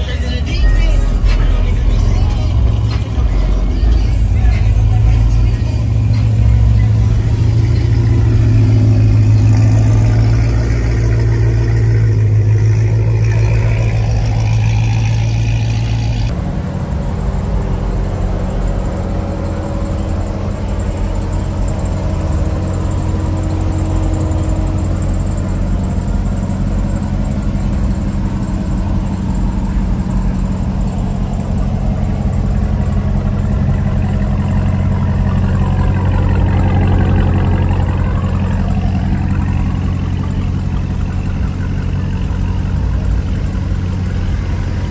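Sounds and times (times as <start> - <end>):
car engine rumbling: 0.0 - 44.9.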